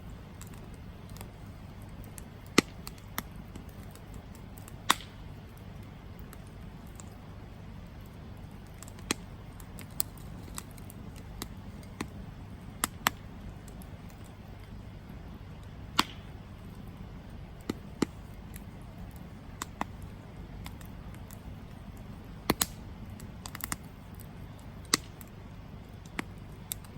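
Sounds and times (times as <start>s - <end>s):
campfire wood crackling: 0.0s - 26.9s.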